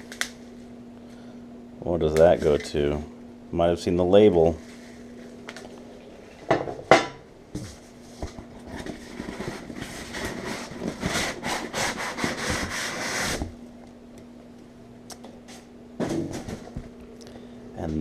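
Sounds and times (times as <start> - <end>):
cardboard scraping and rustling: 7.6 - 13.6.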